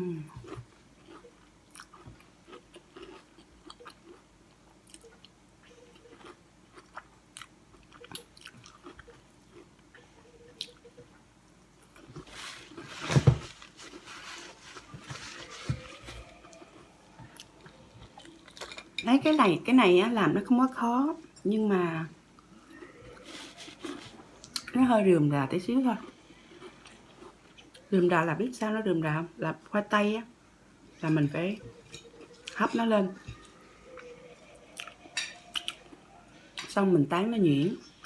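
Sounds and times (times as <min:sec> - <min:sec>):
chewing and crunching food: 0:00.1 - 0:19.1, 0:26.0 - 0:28.0, 0:31.0 - 0:36.8.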